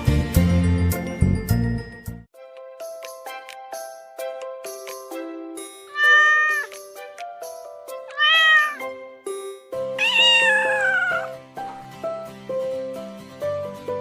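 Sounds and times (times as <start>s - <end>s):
light background music: 0.1s - 14.0s
cat meowing: 5.9s - 6.7s, 8.1s - 8.9s, 10.0s - 11.4s.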